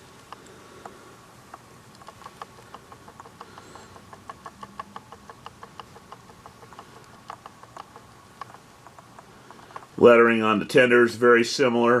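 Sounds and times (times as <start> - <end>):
small clicks and taps: 0.0 - 10.0.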